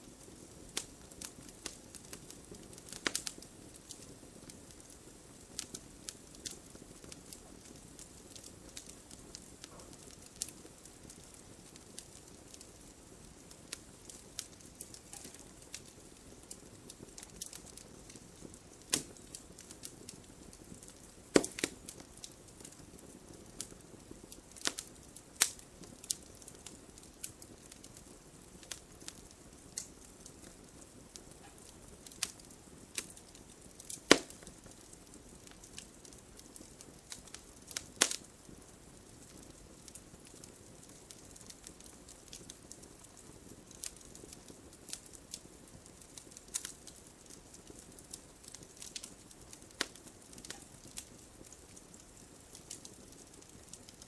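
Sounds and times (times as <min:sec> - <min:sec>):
campfire wood crackling and popping: 0:00.0 - 0:54.0
low steady fire hiss: 0:00.0 - 0:54.0.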